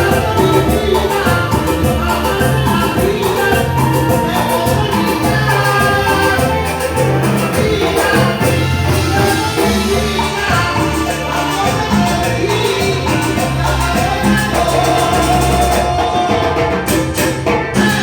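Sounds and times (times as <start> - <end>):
bass line: 0.0 - 18.0
latin dance band playing: 0.0 - 18.0
percussion beat: 0.0 - 18.0.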